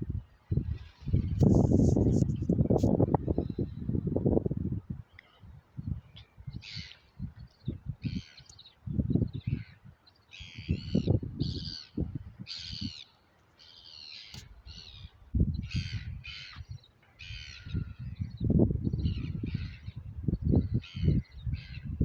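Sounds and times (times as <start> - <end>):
birds giving harsh calls: 13.6 - 18.2.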